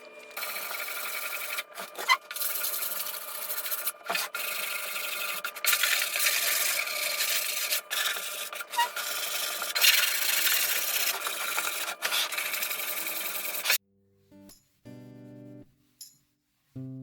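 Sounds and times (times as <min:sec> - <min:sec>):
wood being sanded: 0:00.4 - 0:13.8.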